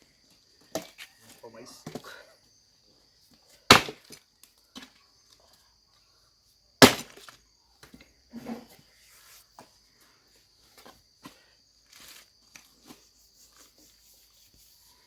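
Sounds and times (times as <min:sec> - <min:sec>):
firewood cracking: 0:03.7 - 0:04.2, 0:06.8 - 0:07.3
wood snaps and knocks: 0:03.7 - 0:04.2, 0:06.8 - 0:08.0.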